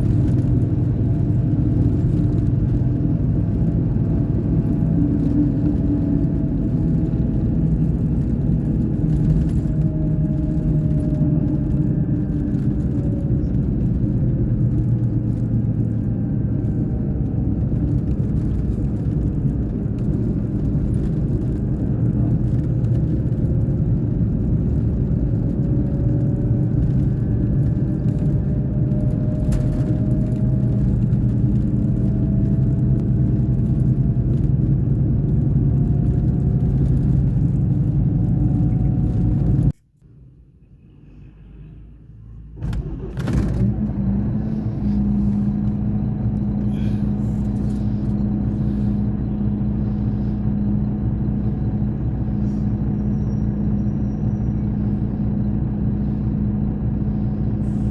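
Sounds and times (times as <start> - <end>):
bus engine droning: 0.0 - 57.9.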